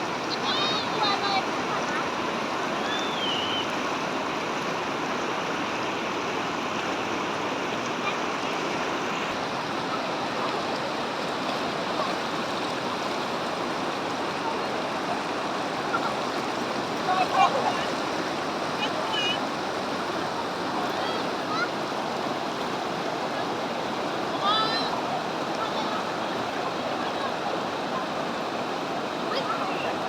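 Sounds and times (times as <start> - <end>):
waterfall rushing and splashing: 0.0 - 30.0.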